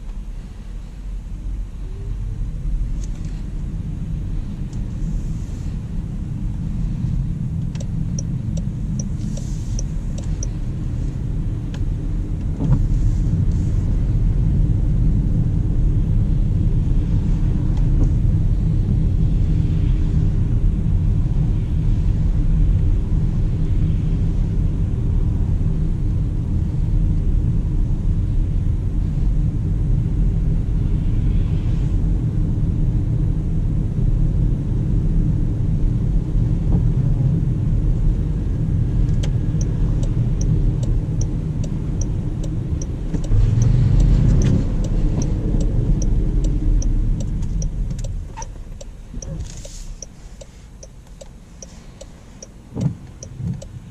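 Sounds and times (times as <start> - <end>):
road and tyre rumble: 0.0 - 53.9
regular ticking: 39.6 - 53.8.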